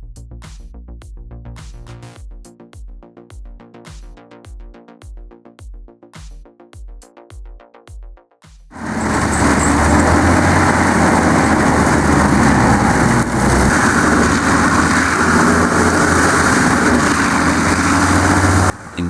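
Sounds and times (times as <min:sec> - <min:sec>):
heavy machine engine running: 0:08.8 - 0:19.0.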